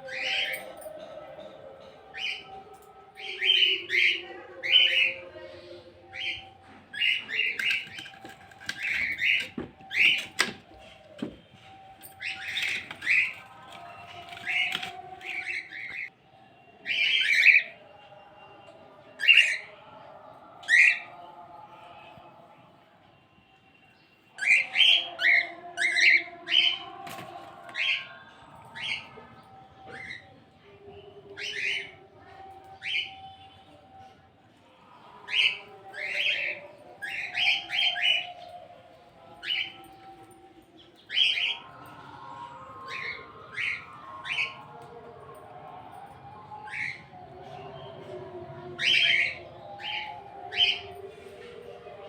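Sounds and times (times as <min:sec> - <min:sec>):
birds chirping: 0:00.0 - 0:22.3.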